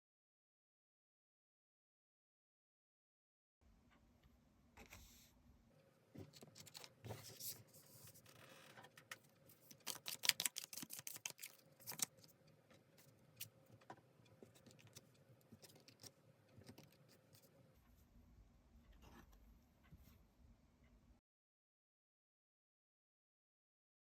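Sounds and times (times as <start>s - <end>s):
cards rustling: 9.6s - 12.4s.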